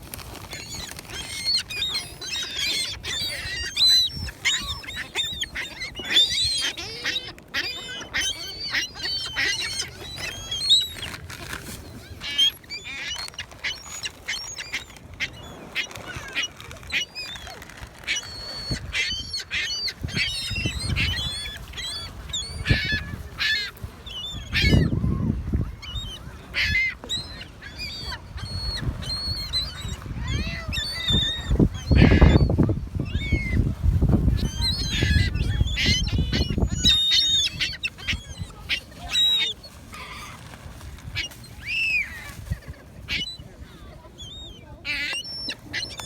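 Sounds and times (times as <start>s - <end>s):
gulls squawking: 0.3s - 46.0s.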